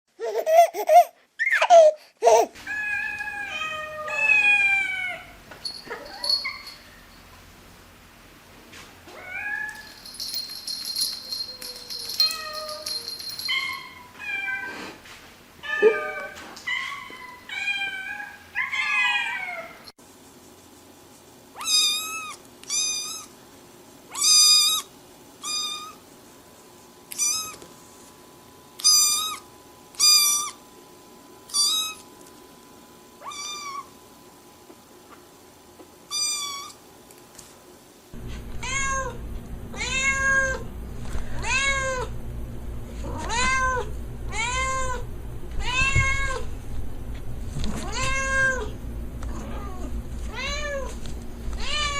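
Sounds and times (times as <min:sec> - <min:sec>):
cats meowing: 0:02.6 - 0:06.7, 0:15.6 - 0:19.8.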